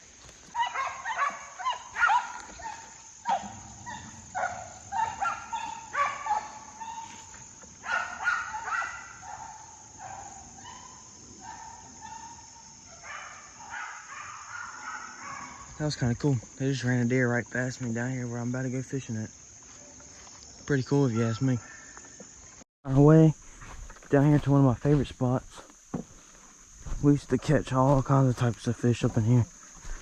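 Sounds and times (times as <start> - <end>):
high insect drone: 0.0 - 30.0
dogs barking: 0.5 - 15.8, 21.1 - 21.6.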